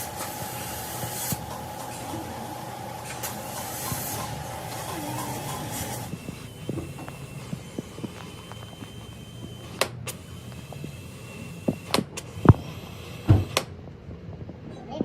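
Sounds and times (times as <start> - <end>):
spraying hiss: 0.0 - 13.7
sharp clicks: 3.0 - 13.8.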